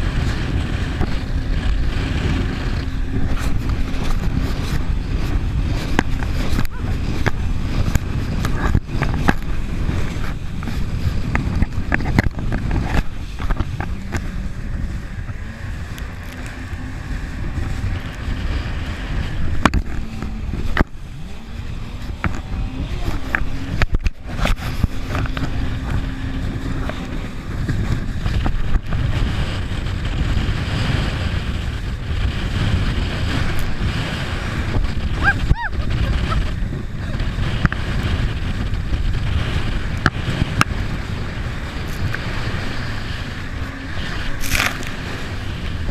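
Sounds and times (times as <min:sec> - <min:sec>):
heavy steady rumbling: 0:00.0 - 0:45.9
jet ski engine hum: 0:00.0 - 0:45.9.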